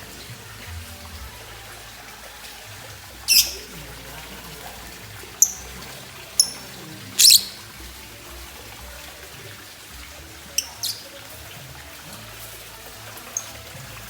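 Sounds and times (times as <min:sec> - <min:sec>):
lovebird shrill chirps: 0:03.3 - 0:03.7, 0:06.4 - 0:06.6, 0:07.2 - 0:07.6, 0:10.6 - 0:11.0.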